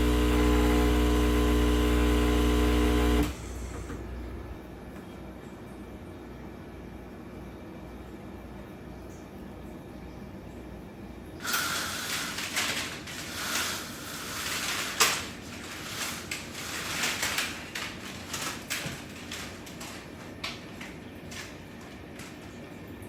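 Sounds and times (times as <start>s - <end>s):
rustling and scraping: 11.7s - 22.5s.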